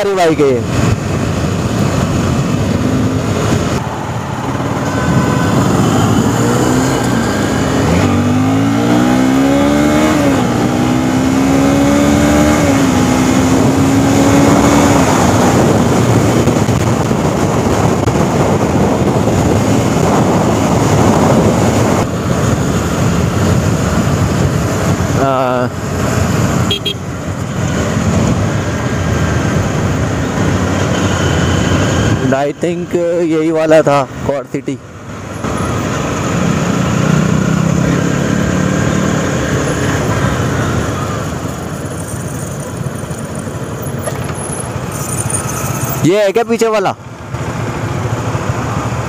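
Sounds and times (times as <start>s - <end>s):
wind rush on microphone: 0.6s - 9.1s, 11.8s - 32.3s
motorcycle engine accelerating: 0.7s - 32.2s, 35.1s - 46.1s.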